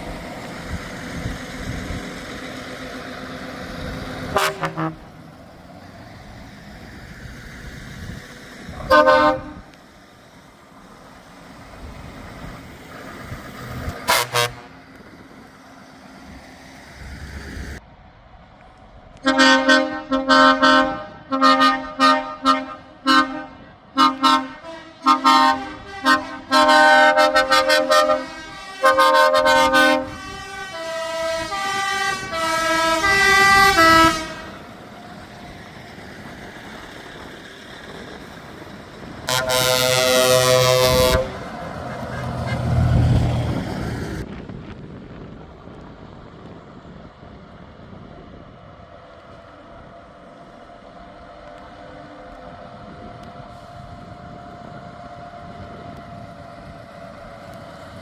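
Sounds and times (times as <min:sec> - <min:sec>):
truck air horns: 0:04.2 - 0:05.2, 0:08.8 - 0:09.8, 0:13.9 - 0:14.8, 0:19.2 - 0:34.8, 0:39.2 - 0:43.0
horn playing a tune: 0:04.3 - 0:05.1, 0:08.9 - 0:09.7, 0:14.0 - 0:14.7, 0:19.2 - 0:34.6, 0:39.3 - 0:42.8.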